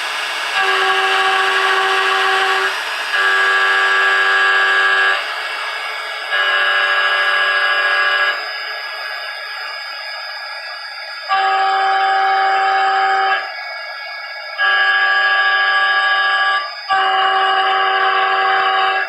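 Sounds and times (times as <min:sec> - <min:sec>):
milling cutter squealing on steel: 0:00.4 - 0:09.7.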